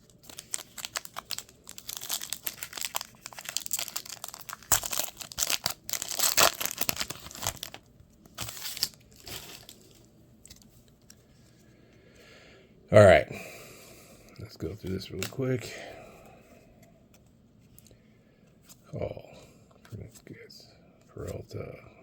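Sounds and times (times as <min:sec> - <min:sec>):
wrapper crinkling and tearing: 0:00.0 - 0:11.2.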